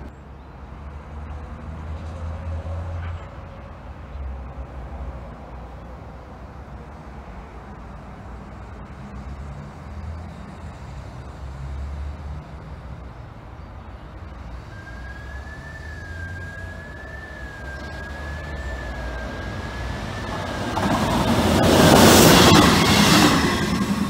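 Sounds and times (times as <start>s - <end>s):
train passing at speed: 0.6s - 24.0s
high wavering whine: 12.9s - 24.0s.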